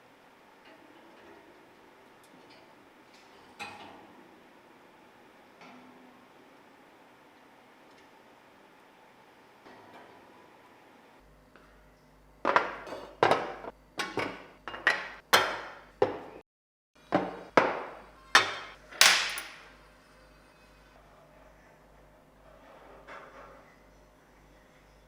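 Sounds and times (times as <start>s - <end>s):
hammer strikes ringing: 18.4s - 19.6s.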